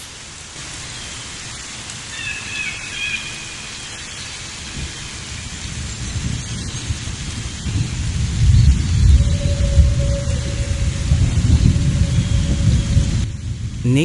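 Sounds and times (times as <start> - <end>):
steady rain: 0.0 - 14.0
low thunder rumbling: 4.6 - 14.0.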